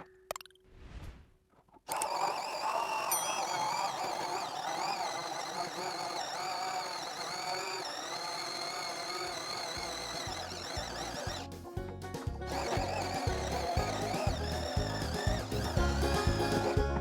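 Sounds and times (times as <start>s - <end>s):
electric drill boring into wall: 1.9s - 11.5s, 12.5s - 16.8s
background music with a beat: 11.5s - 17.0s.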